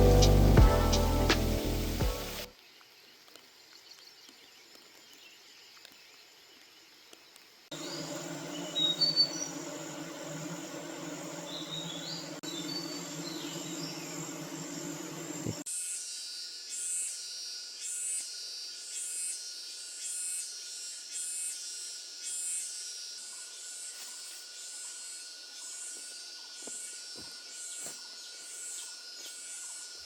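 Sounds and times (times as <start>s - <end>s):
high insect buzz: 0.0s - 2.5s, 7.7s - 30.0s.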